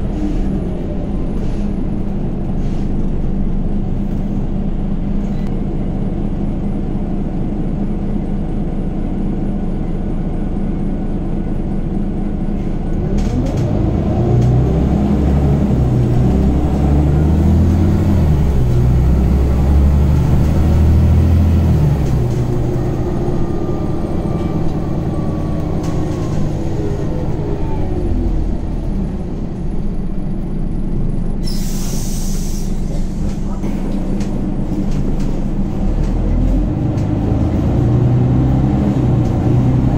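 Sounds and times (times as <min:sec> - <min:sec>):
bus engine running: 0:00.0 - 0:39.9.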